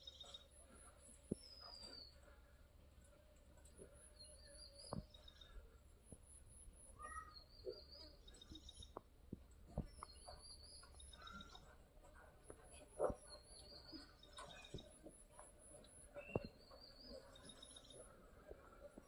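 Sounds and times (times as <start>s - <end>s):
high bird chirps: 7.0s - 9.0s.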